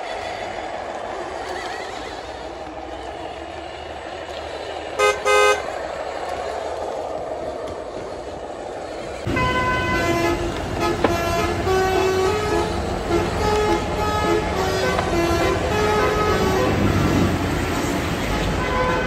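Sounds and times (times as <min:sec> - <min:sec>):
engine hum: 0:00.0 - 0:19.0
horn with stepping tones: 0:05.0 - 0:05.7, 0:09.3 - 0:17.4, 0:18.2 - 0:19.0
truck horn toots: 0:05.0 - 0:05.7, 0:09.3 - 0:17.4, 0:18.2 - 0:19.0.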